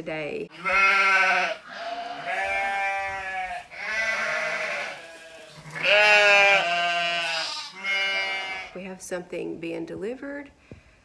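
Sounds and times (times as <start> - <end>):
livestock bleating: 0.5 - 8.8.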